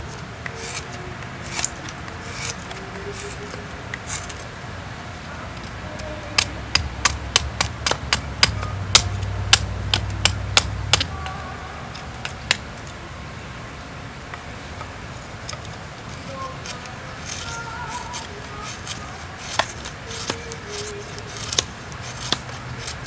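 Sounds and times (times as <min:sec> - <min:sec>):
steel striking flint clicks: 0:14.8 - 0:23.0.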